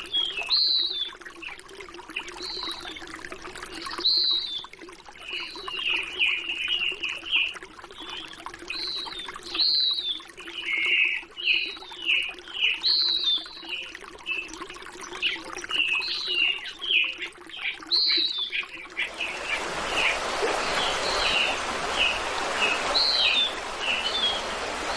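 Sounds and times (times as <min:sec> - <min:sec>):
running water: 0:00.0 - 0:24.9
rush of water: 0:00.0 - 0:24.9
birds chirping and whistling: 0:15.2 - 0:24.9.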